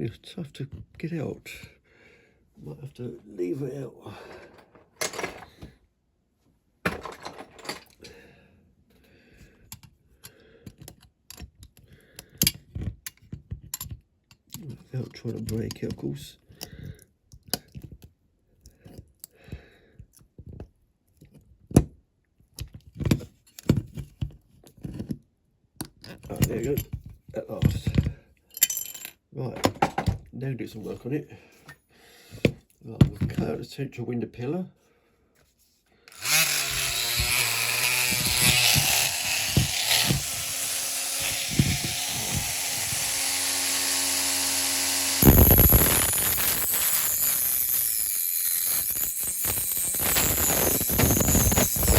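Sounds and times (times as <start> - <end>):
rotary tool cutting metal: 36.1 - 51.9.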